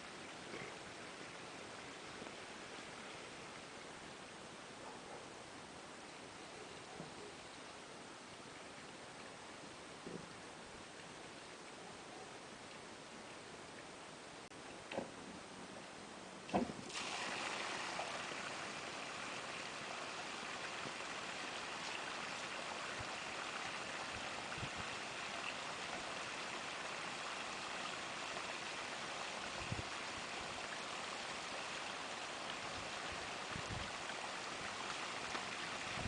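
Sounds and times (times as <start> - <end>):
water rushing through pipe: 16.5 - 36.0.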